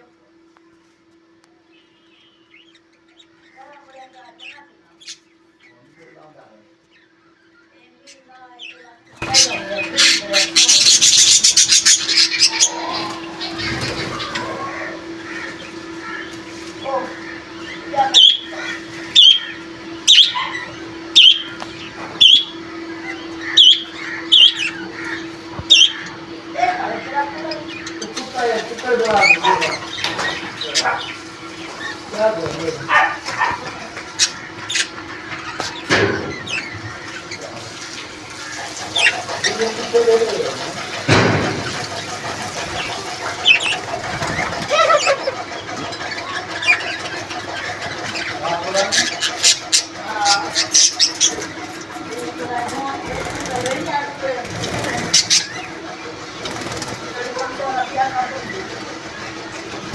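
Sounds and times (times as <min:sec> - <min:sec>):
steady background noise: 0:00.0 - 0:59.9
steady low hum: 0:00.0 - 0:59.9
soft bird chirps: 0:01.5 - 0:26.6
francolins calling: 0:01.6 - 0:59.9.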